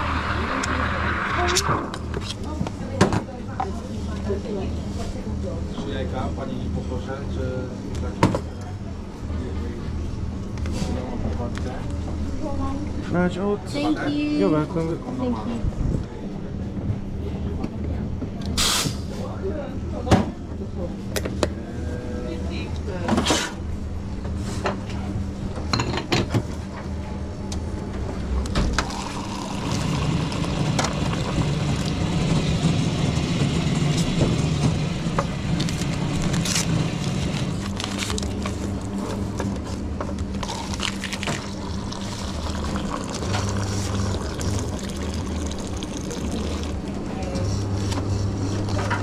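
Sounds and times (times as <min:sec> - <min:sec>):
espresso machine hum: 0:00.0 - 0:02.8, 0:27.9 - 0:49.0
liquid pouring: 0:28.8 - 0:32.6, 0:40.4 - 0:47.0.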